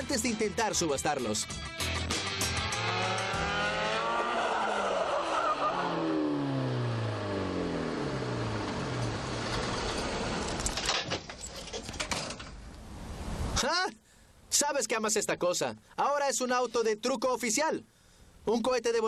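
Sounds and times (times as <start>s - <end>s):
small car engine revving hard: 2.1s - 10.6s.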